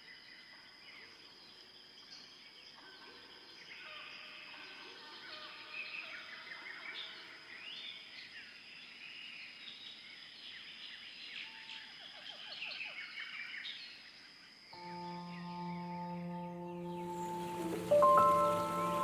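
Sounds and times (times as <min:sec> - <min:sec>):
birds chirping chorus: 0:14.8 - 0:19.0
high insect-like tone: 0:14.8 - 0:19.0
musical drone: 0:14.8 - 0:19.0.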